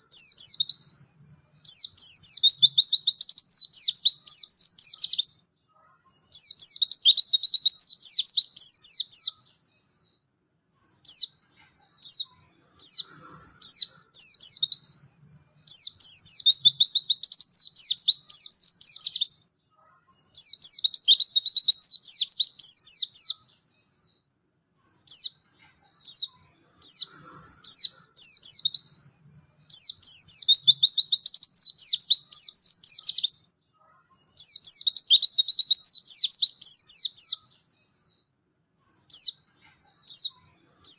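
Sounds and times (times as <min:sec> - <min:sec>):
bird fast high twittering: 0:00.0 - 0:05.4, 0:06.0 - 0:10.1, 0:10.8 - 0:19.4, 0:20.1 - 0:24.2, 0:24.8 - 0:33.4, 0:34.1 - 0:38.2, 0:38.8 - 0:40.9.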